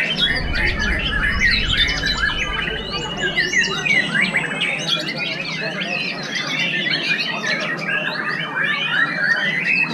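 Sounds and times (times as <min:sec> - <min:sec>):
high rising whistle: 0:00.0 - 0:05.3.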